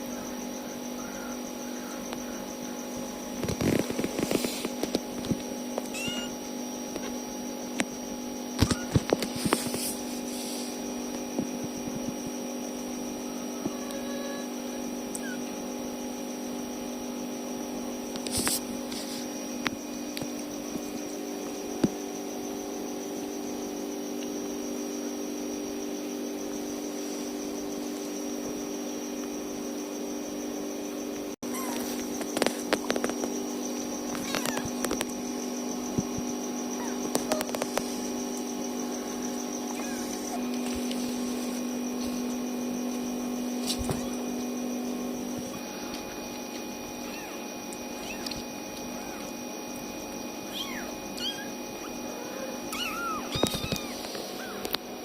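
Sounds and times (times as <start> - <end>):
steady hum: 14.4 - 55.0.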